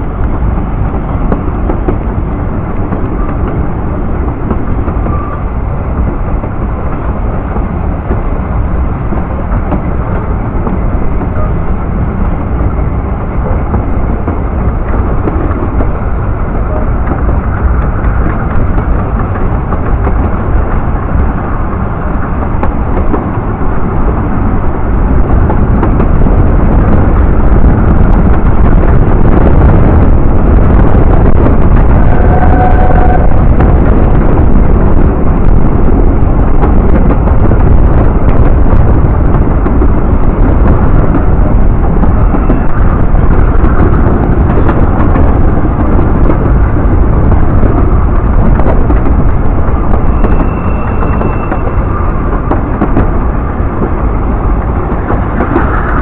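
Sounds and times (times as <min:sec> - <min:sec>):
train wheels rumbling: 0:00.0 - 0:56.0.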